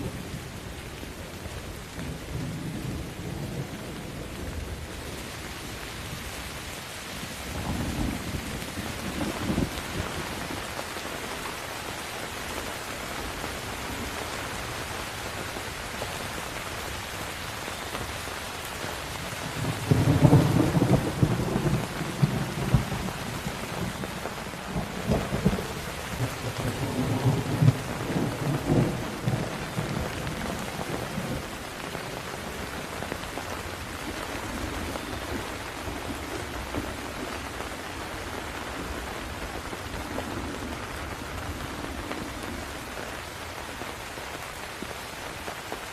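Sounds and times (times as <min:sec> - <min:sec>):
steady rain falling: 0:00.0 - 0:45.9
rolling thunder rumble: 0:07.4 - 0:10.6, 0:19.4 - 0:37.6.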